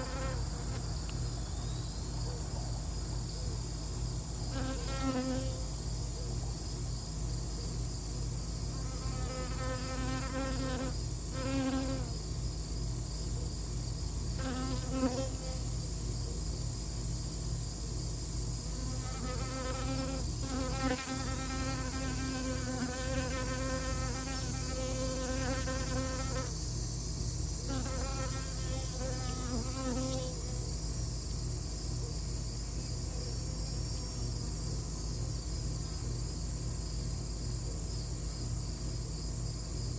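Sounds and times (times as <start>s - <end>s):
flying insect buzzing: 0.0s - 1.1s, 4.5s - 5.7s, 8.7s - 12.2s, 14.4s - 15.7s, 18.7s - 26.7s, 27.6s - 30.7s
crickets chirping: 0.0s - 39.9s.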